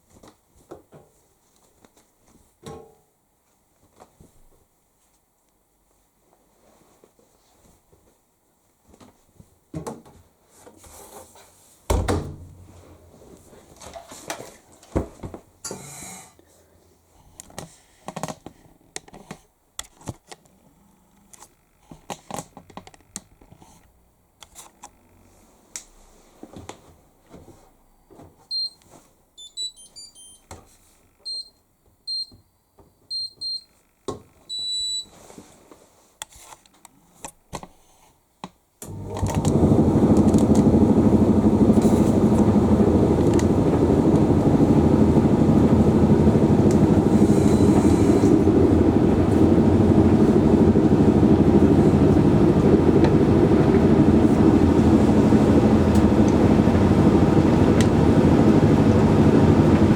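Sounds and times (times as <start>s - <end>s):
short high beeps: 29.4s - 30.4s
laundry rustling and knocking: 39.4s - 59.9s.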